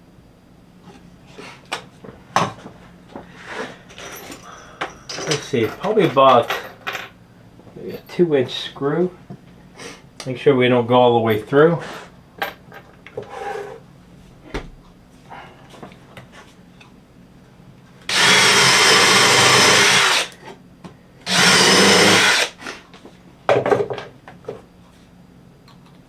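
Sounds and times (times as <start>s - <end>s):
power drill driving screws into wood: 18.1s - 20.4s, 21.3s - 22.6s.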